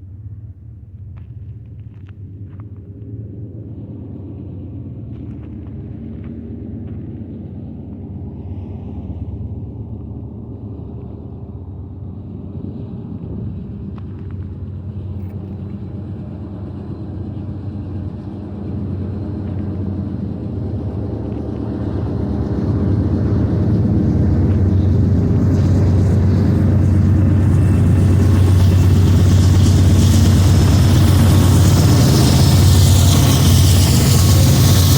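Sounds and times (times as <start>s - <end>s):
locomotive engine drone: 0.0s - 34.9s
train hiss: 22.2s - 34.9s.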